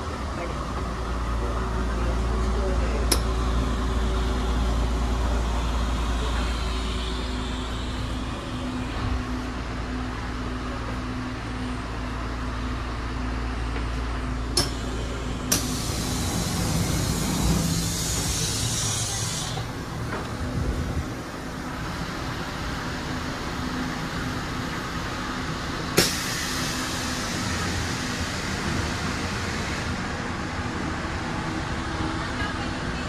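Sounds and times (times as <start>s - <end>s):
train rumble inside carriage: 0.0s - 33.0s
hiss: 15.5s - 19.7s, 26.0s - 29.8s.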